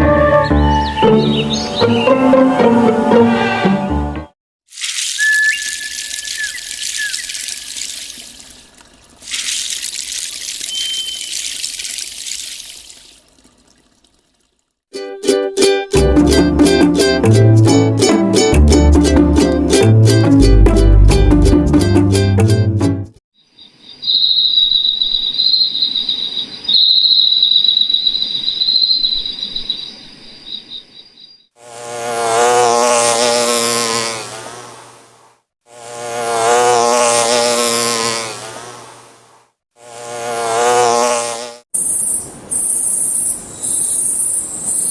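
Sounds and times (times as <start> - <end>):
running water rushing: 4.7 - 14.8
high-pitched insect trill: 23.5 - 29.9
loud low insect buzz: 31.6 - 44.9.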